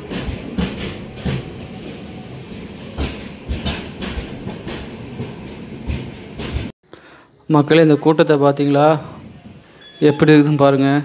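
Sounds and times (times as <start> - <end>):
wheels clacking over rail joints: 0.0 - 1.8, 2.5 - 6.7
train rumble: 0.0 - 6.7.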